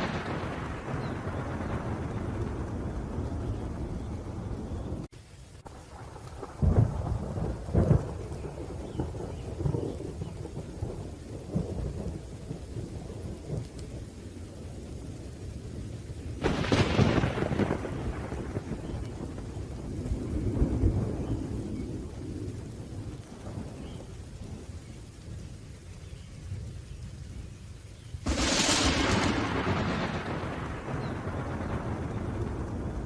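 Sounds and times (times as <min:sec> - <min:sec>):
sharp thunderclap: 0:00.0 - 0:05.1, 0:05.9 - 0:13.8, 0:16.4 - 0:24.6, 0:28.2 - 0:33.0
low rolling thunder: 0:00.0 - 0:27.6, 0:28.2 - 0:33.0
rain: 0:00.0 - 0:33.0.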